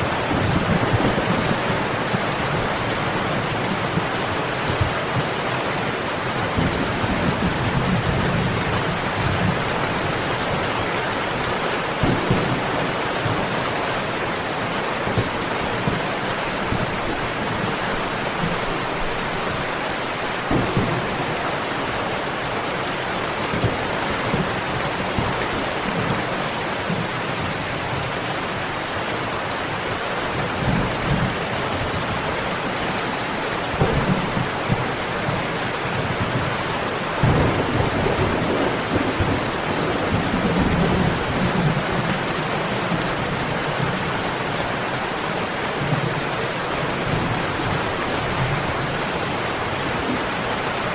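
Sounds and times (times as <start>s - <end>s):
thunder rumbles: 0.0s - 5.4s, 6.4s - 14.2s, 15.0s - 26.3s, 33.6s - 44.2s
heavy rain: 0.0s - 50.9s.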